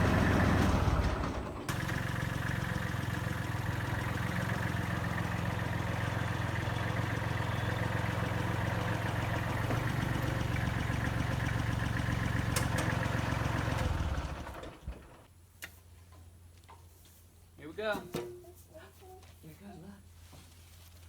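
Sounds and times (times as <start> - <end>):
diesel engine running: 0.0 - 15.3.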